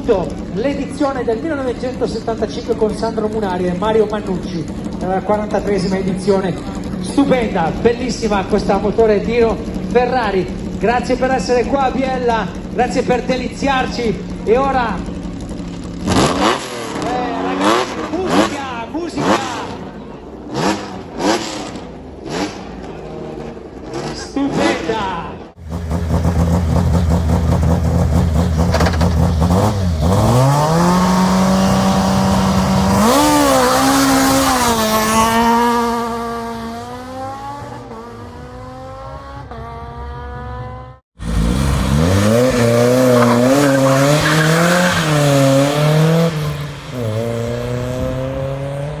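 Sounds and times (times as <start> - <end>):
rally car revving and accelerating: 0.0 - 49.0
second rally car launching: 25.6 - 39.6.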